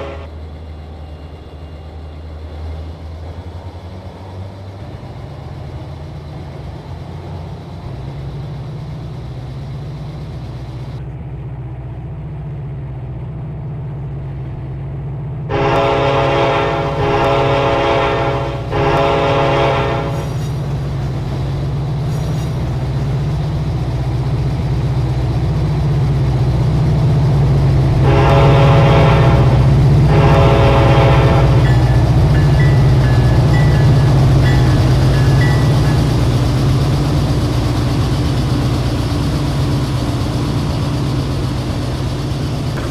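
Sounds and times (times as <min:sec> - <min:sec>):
locomotive air horn blasts: 0:00.0 - 0:00.3, 0:15.5 - 0:20.3, 0:28.0 - 0:34.6
diesel locomotive drone: 0:00.0 - 0:42.9.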